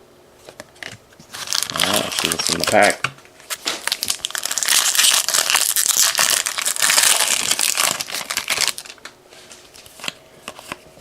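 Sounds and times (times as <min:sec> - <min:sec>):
plastic wrapper crinkling: 0:01.3 - 0:09.1.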